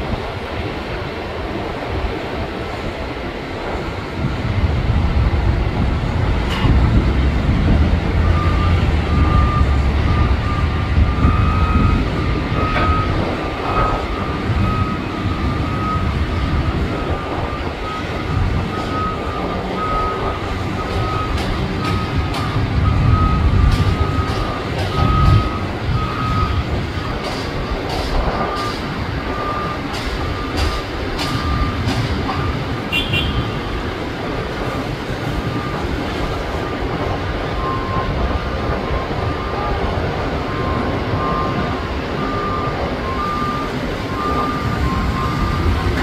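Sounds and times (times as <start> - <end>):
reversing beeper: 8.2 - 33.7, 35.4 - 35.9, 37.5 - 46.0.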